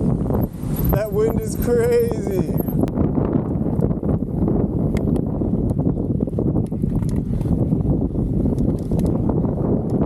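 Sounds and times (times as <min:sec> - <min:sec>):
strong wind buffeting microphone: 0:00.0 - 0:10.0
small clicks: 0:08.5 - 0:09.2.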